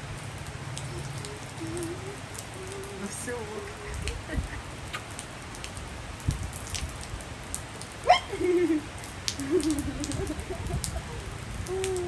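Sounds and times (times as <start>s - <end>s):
light rain ticking: 0.0s - 12.0s
bird cooing: 0.8s - 3.2s, 9.4s - 12.0s.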